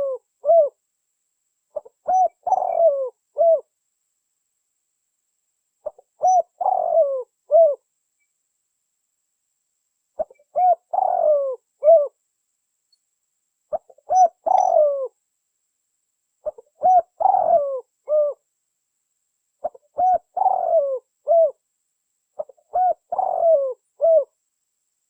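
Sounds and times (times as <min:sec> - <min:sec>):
dove cooing: 0:00.0 - 0:00.8, 0:01.8 - 0:03.7, 0:05.8 - 0:07.8, 0:10.2 - 0:12.2, 0:13.7 - 0:15.2, 0:16.4 - 0:18.4, 0:19.6 - 0:21.6, 0:22.4 - 0:24.4.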